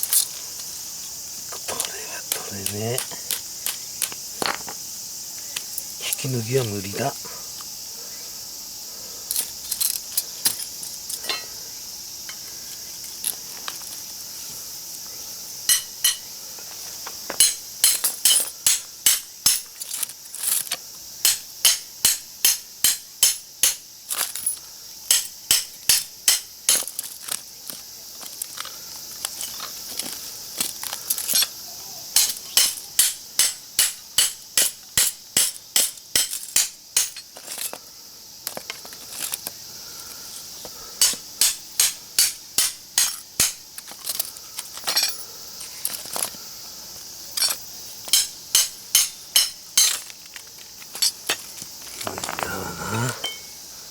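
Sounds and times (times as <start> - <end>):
insects chirping: 0.0 - 53.9
hammer striking steel: 15.7 - 16.2, 32.2 - 37.2, 41.0 - 43.6, 48.1 - 50.0, 53.2 - 53.5.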